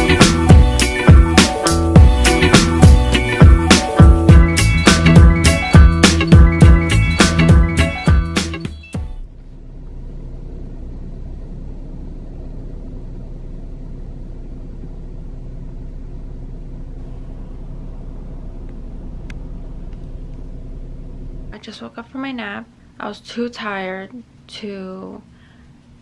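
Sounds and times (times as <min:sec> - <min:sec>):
background music: 0:00.0 - 0:09.3
car engine idling: 0:09.0 - 0:21.6.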